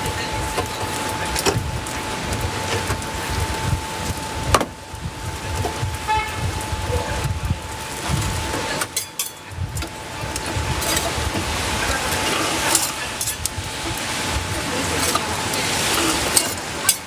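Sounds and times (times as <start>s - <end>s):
roadside traffic rumbling: 0.0s - 17.0s
thin steady whine: 0.0s - 17.0s
vehicle horn toot: 6.0s - 6.6s.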